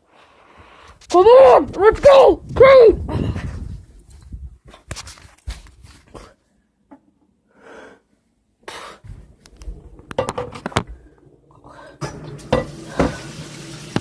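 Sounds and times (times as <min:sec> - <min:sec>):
person breathing hard and wheezing: 0:07.4 - 0:09.4, 0:12.8 - 0:13.5.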